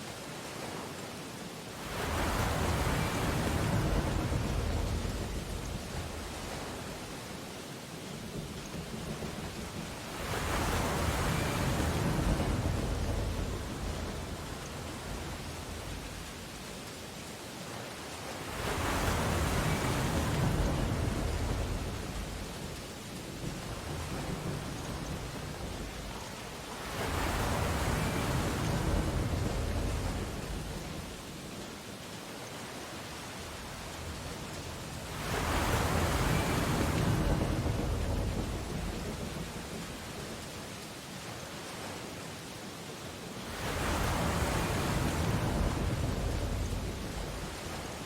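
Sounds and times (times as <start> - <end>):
ocean waves on beach: 0.0 - 48.0
surf hiss: 0.0 - 48.0
wave breaking: 33.5 - 40.2.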